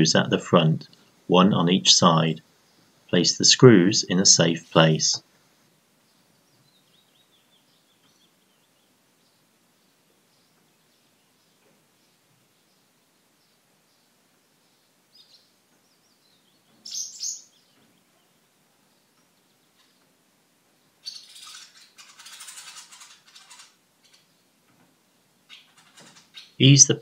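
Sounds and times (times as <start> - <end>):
birds chirping: 5.9 - 27.0
soft rustling and scratching: 21.4 - 25.0.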